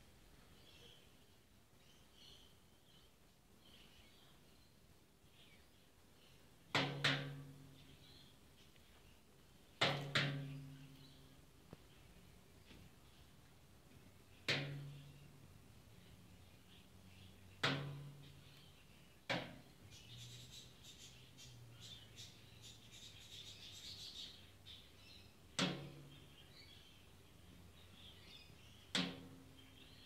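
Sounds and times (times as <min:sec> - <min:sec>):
bird knocking with loud clangs: 0:06.7 - 0:07.6, 0:09.8 - 0:10.8, 0:14.4 - 0:15.0, 0:17.6 - 0:18.2, 0:19.3 - 0:19.6, 0:25.6 - 0:26.1, 0:28.9 - 0:29.4.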